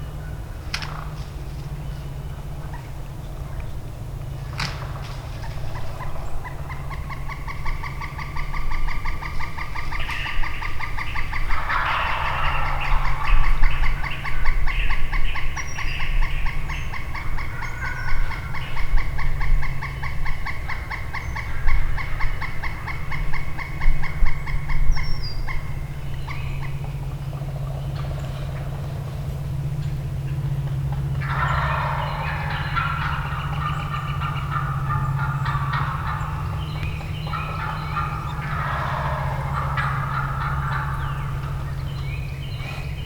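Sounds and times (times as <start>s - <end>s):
turkeys gobbling: 0.0s - 43.0s
fast pulsing call: 5.4s - 24.8s, 30.0s - 43.0s.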